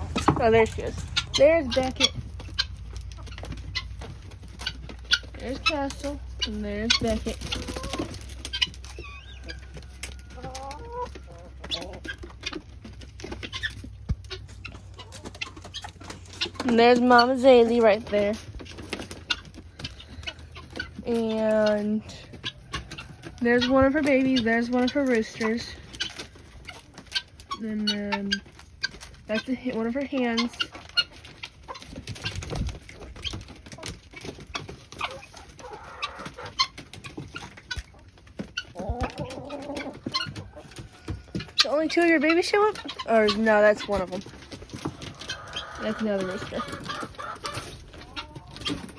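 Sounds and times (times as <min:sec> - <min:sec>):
chickens clucking: 0:00.0 - 0:48.9
chicken stepped call: 0:44.2 - 0:48.9.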